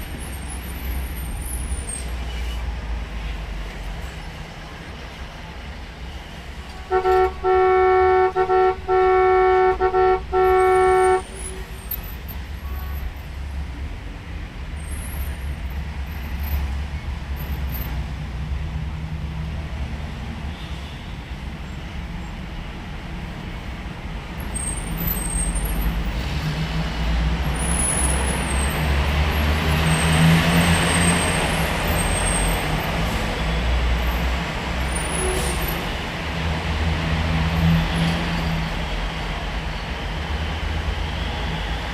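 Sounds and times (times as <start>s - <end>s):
vehicle horn honking: 6.8s - 11.7s.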